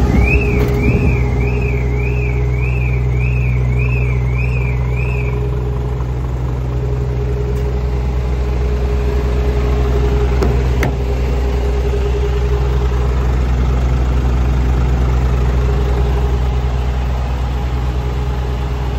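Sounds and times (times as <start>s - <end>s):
truck diesel engine idling: 0.0s - 18.9s.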